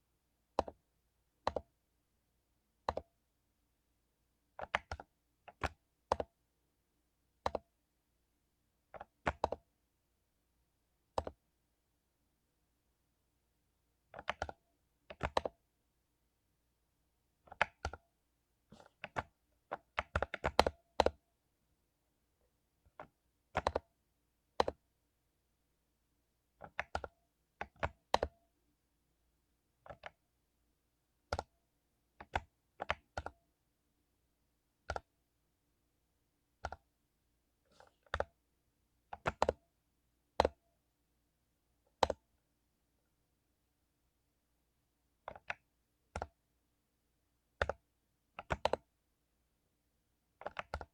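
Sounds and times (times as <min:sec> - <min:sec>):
mechanical keyboard typing: 0:04.6 - 0:06.2, 0:14.2 - 0:15.5, 0:18.8 - 0:21.2, 0:22.9 - 0:23.8, 0:24.6 - 0:24.8, 0:26.6 - 0:28.4, 0:29.8 - 0:30.2, 0:39.1 - 0:39.6, 0:42.0 - 0:42.2, 0:47.5 - 0:47.8, 0:48.4 - 0:48.8, 0:50.4 - 0:50.9.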